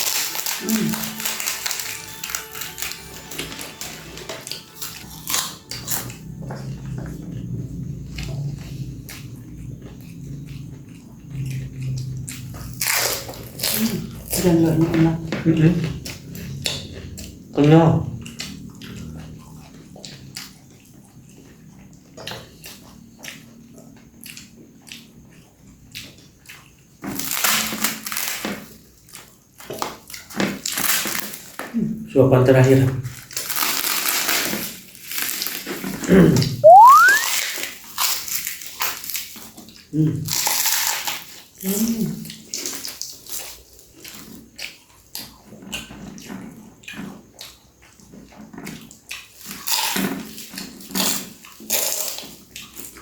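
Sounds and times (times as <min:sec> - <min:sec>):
person chewing: 0:00.0 - 0:07.1, 0:11.4 - 0:14.4, 0:36.6 - 0:37.3
chewing with wet mouth clicks: 0:04.4 - 0:14.5, 0:15.3 - 0:27.7, 0:42.2 - 0:53.0
short voiced sounds: 0:36.6 - 0:37.3.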